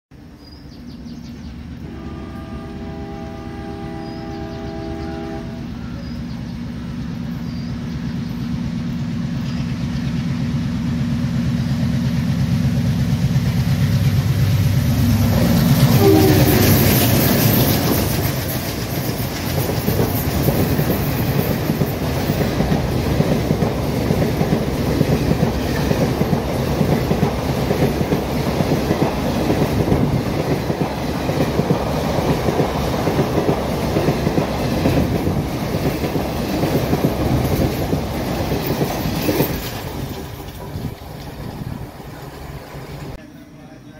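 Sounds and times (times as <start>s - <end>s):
locomotive rumble: 0.9s - 43.8s
coaches clattering over rails: 11.8s - 43.2s.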